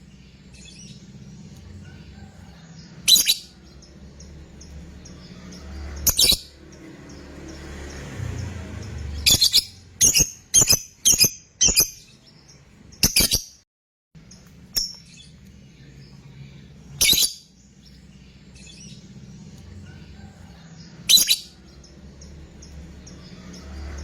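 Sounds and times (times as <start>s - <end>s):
lovebird shrill calls: 3.0s - 3.6s, 9.2s - 12.1s, 17.0s - 17.5s.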